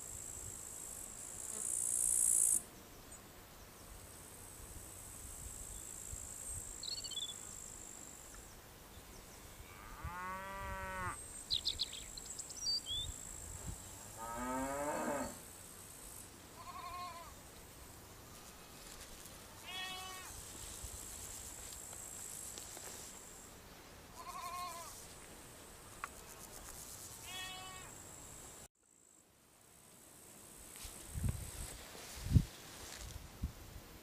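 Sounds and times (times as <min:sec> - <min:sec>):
crickets chirring: 0:00.0 - 0:02.6, 0:24.2 - 0:29.2
sheep bleating: 0:16.6 - 0:17.3, 0:19.6 - 0:20.3, 0:24.2 - 0:24.9, 0:27.3 - 0:27.9.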